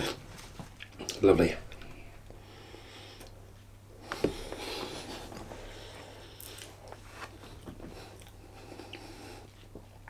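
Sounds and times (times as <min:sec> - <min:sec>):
man chewing food: 0:04.0 - 0:10.0.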